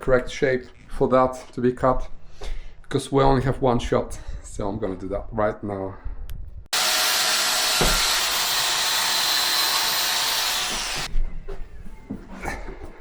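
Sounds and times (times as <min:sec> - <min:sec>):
electric saw whining: 0:06.7 - 0:11.1.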